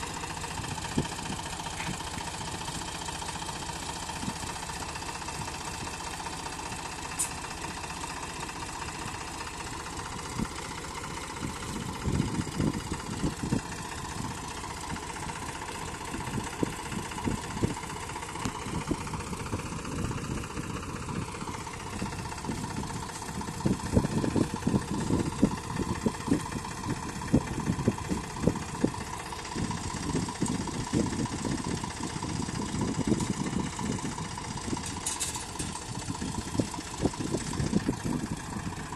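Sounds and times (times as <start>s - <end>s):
tractor diesel engine running: 0.0s - 38.9s
low thuds and rumbles: 11.4s - 15.1s, 16.2s - 38.9s.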